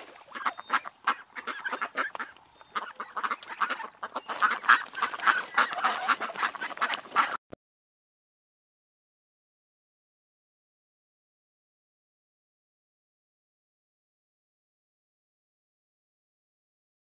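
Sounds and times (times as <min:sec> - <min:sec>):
ducks quacking: 0:00.0 - 0:07.4.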